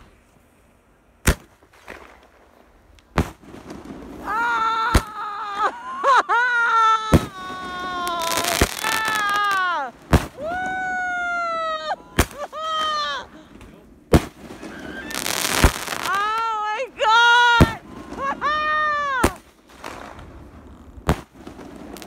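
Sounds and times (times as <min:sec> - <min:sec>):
fireworks sharp bangs: 0:01.2 - 0:05.8, 0:07.0 - 0:11.0, 0:11.9 - 0:22.0.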